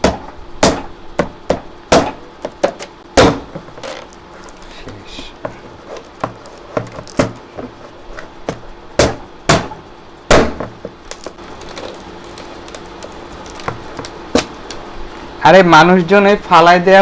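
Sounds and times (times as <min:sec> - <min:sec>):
plastic bottles struck and crushed: 0:01.9 - 0:04.0, 0:09.0 - 0:11.8.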